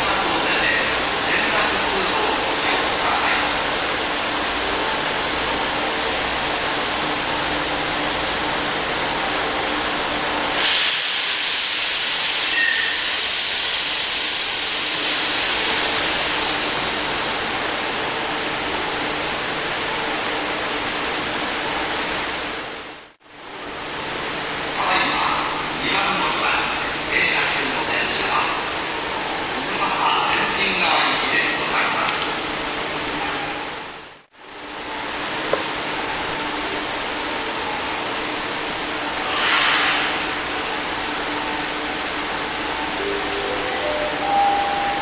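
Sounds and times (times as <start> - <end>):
train rail rumble and hiss: 0.0 - 45.0
sudden loud hiss: 10.5 - 17.8, 39.1 - 40.9.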